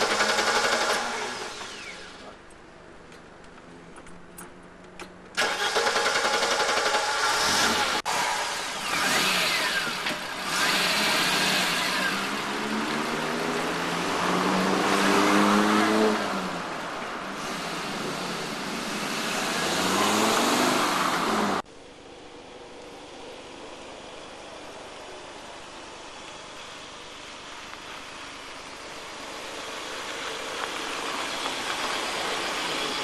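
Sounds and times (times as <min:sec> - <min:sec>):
car engine accelerating: 0:05.4 - 0:21.7.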